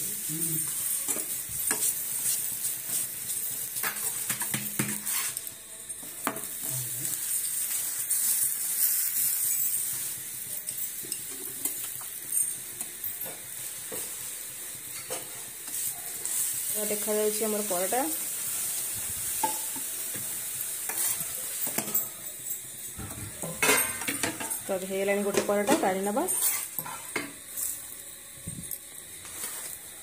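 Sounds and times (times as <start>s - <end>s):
oil sizzling in a pan: 0.0s - 30.0s
steel spatula scraping and tapping: 1.0s - 3.0s, 3.8s - 5.5s, 19.4s - 20.3s, 20.9s - 22.2s, 25.3s - 27.7s.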